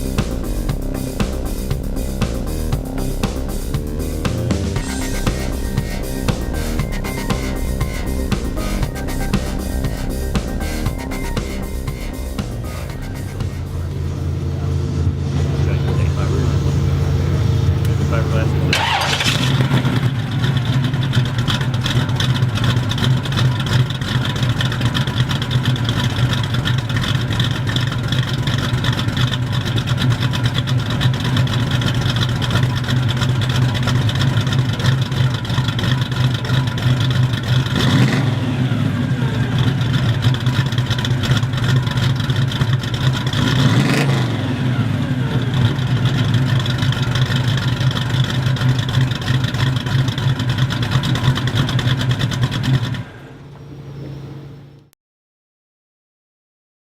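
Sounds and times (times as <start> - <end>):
car engine idling and revving: 0.0 - 54.9.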